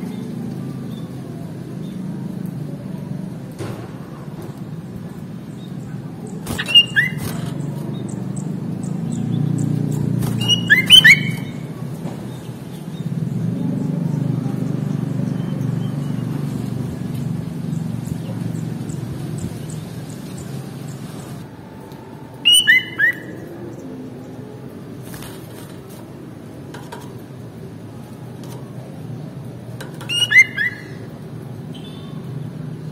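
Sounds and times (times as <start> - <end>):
bulbul whistling: 6.2 - 11.7, 22.4 - 23.5, 30.0 - 31.1.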